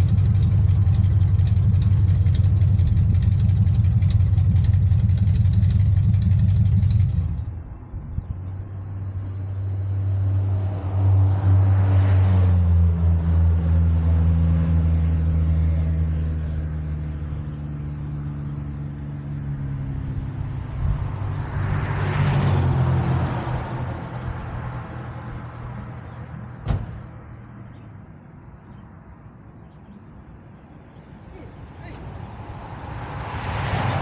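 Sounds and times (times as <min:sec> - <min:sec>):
vehicle engine running: 0:00.0 - 0:07.7
sharp knock: 0:26.6 - 0:27.0.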